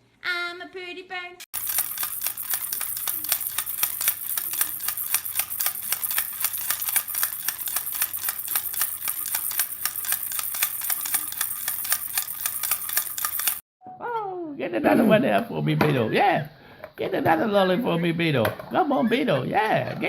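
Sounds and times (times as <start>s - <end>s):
rapid clicking: 1.6s - 13.6s.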